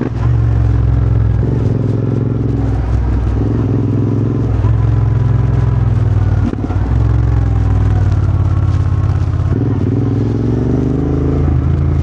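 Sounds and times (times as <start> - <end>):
motorcycle engine throbbing: 0.0 - 12.0.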